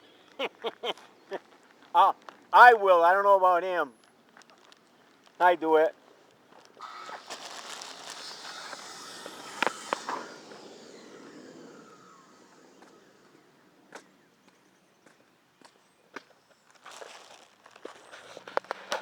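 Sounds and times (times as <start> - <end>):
sharp clicks: 6.8 - 10.6
car passing by: 6.9 - 14.7.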